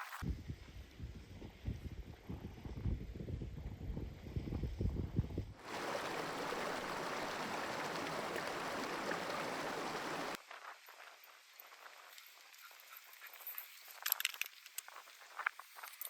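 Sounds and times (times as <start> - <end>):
wind buffeting microphone: 0.2 - 10.4
stream rushing: 5.6 - 10.4.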